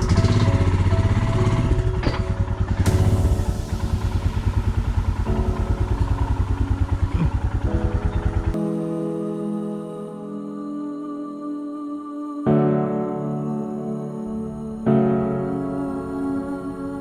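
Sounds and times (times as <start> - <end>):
motorcycle engine throbbing: 0.0 - 8.6.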